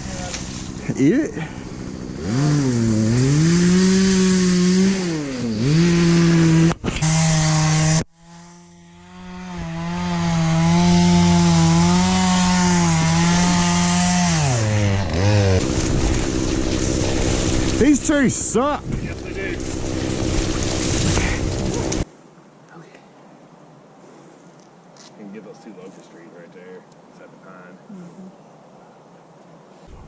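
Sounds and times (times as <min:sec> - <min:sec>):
chainsaw running at high revs: 0:00.6 - 0:22.0.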